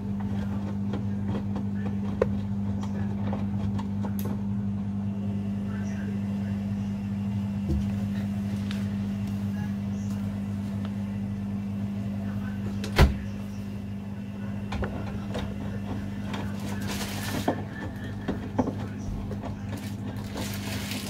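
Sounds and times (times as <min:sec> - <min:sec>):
washing machines humming: 0:00.0 - 0:21.0
washing machine knock: 0:07.6 - 0:08.2, 0:12.8 - 0:13.4, 0:14.6 - 0:21.0.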